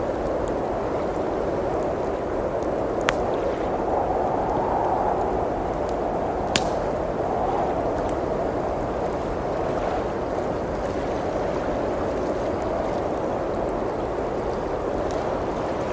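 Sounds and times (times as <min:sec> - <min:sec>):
wood fire crackling: 0:00.0 - 0:10.3
blizzard wind blowing: 0:00.0 - 0:15.9
sharp fire pops: 0:03.0 - 0:03.5, 0:06.4 - 0:07.2.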